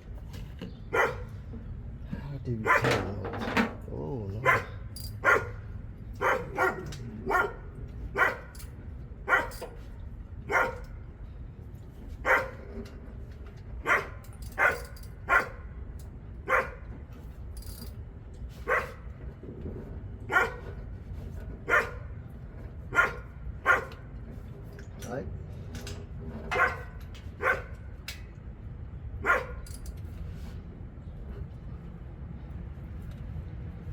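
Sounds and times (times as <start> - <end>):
steady low rumble: 0.0 - 33.9
dog barking: 0.9 - 1.4, 2.6 - 3.0, 4.4 - 8.6, 9.3 - 9.7, 10.5 - 10.9, 12.2 - 12.6, 13.8 - 15.6, 16.4 - 16.8, 18.6 - 19.1, 20.3 - 20.8, 21.7 - 22.1, 22.9 - 24.0, 26.5 - 27.8, 29.2 - 29.6.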